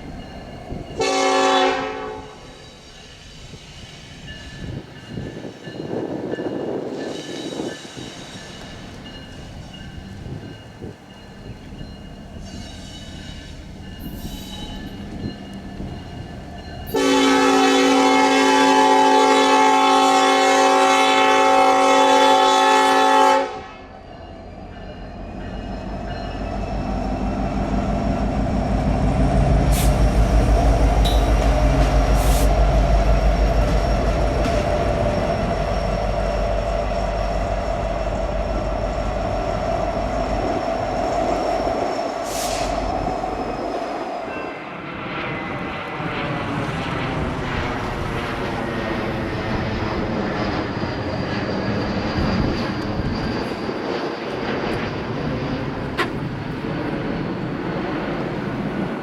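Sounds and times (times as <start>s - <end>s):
wheels clicking and squealing on rails: 0.0s - 18.4s, 23.8s - 59.0s
locomotive air horn chord: 1.0s - 2.5s, 16.9s - 23.9s.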